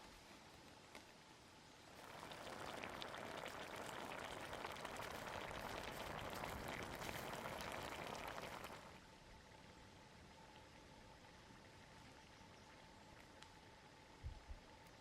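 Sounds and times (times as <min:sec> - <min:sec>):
soup boiling in a pot: 0:01.7 - 0:13.0.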